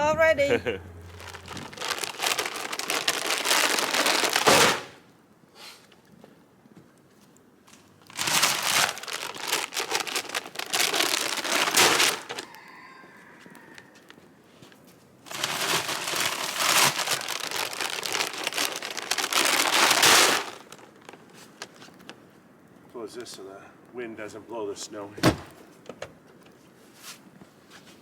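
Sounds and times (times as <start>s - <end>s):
dry feed pouring into barrel: 1.2s - 4.8s, 8.2s - 12.4s, 15.3s - 20.8s.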